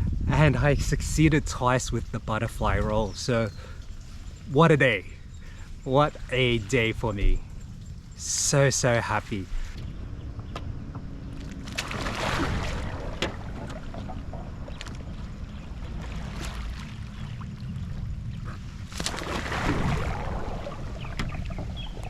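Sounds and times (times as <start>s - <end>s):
low wind rumble on microphone: 0.0s - 22.0s
paddle strokes swishing water: 11.3s - 22.0s.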